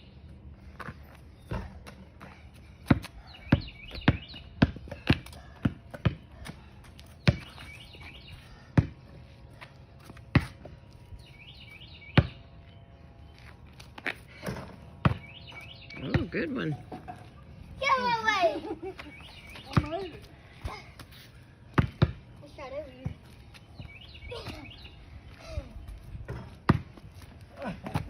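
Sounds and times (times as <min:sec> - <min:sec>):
basketball bouncing on hard court: 0:02.8 - 0:06.6, 0:07.2 - 0:07.6, 0:08.8 - 0:09.0, 0:14.4 - 0:16.4, 0:19.7 - 0:20.2, 0:21.7 - 0:22.2, 0:26.3 - 0:27.0.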